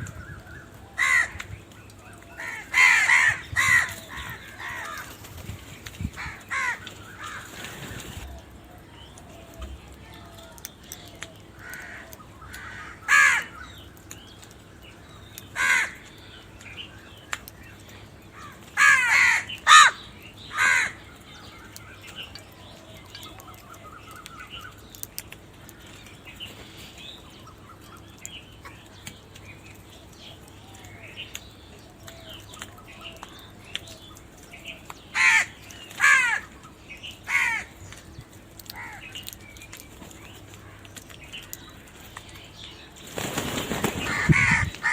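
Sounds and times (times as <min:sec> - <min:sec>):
crows cawing: 0:00.5 - 0:05.2, 0:06.2 - 0:07.6, 0:11.6 - 0:13.9, 0:15.5 - 0:16.2, 0:18.3 - 0:21.8, 0:35.1 - 0:36.6, 0:37.2 - 0:37.8, 0:38.6 - 0:39.4, 0:44.0 - 0:44.9.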